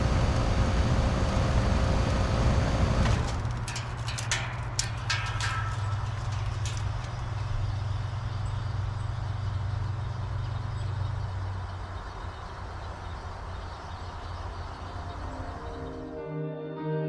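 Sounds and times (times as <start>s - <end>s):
heat pump running: 0.0s - 16.0s
low hum: 0.0s - 16.2s
sharp clicks and ticks: 2.3s - 7.8s.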